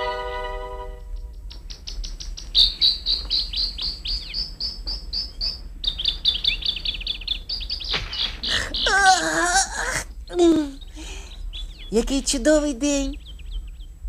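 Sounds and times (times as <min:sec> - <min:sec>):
rapid high bird chirps: 0:01.0 - 0:09.4, 0:10.5 - 0:14.0.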